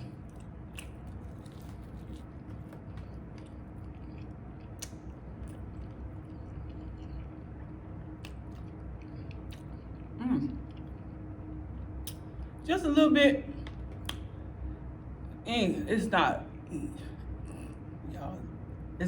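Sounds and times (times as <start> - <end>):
crispy coating crunching: 0.0 - 6.3
close-up chewing: 0.0 - 11.2.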